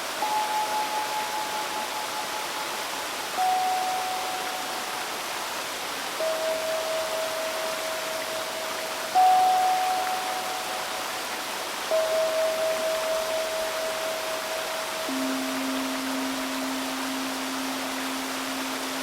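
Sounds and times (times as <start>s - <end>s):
stream flowing: 0.0s - 19.0s
steel tongue drum notes: 6.2s - 19.0s.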